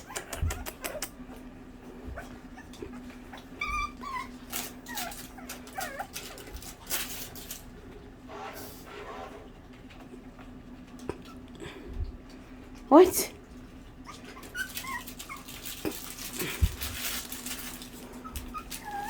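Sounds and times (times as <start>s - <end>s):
puppies whimpering and yipping: 0.0s - 7.4s, 13.8s - 19.0s
faint steady hum: 0.0s - 19.0s.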